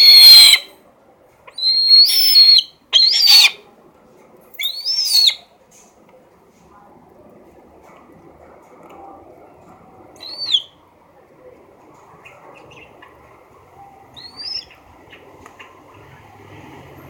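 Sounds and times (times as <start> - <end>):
eagle calling: 0.0 - 0.7, 1.5 - 3.6, 4.6 - 5.4, 10.2 - 10.8, 13.8 - 15.7.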